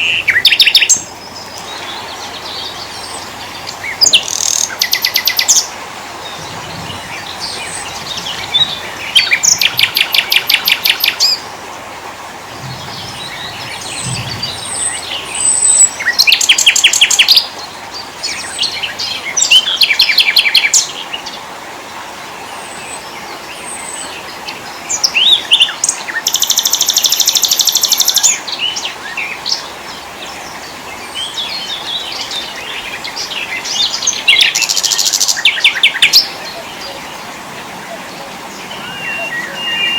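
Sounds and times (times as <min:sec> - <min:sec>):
songbirds singing: 0:00.0 - 0:39.9
steady background hiss: 0:00.0 - 0:39.9
bird chirps and whistles: 0:38.7 - 0:39.9.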